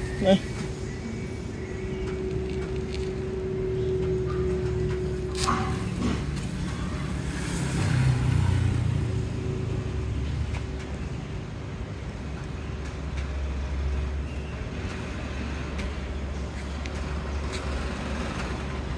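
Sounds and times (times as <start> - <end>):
road traffic hum: 0.0 - 18.9
vehicle engine passing: 4.2 - 10.7.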